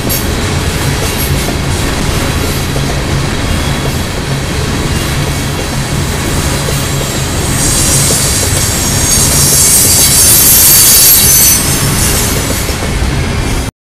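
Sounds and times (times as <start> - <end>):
rumble of train wheels: 0.0 - 13.7
high wheel squeal: 6.3 - 12.7.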